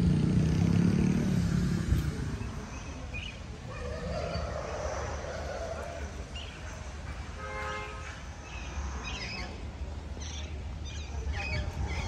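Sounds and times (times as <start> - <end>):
low steady outdoor rumble: 0.0 - 12.0
small birds chirping: 2.4 - 3.5.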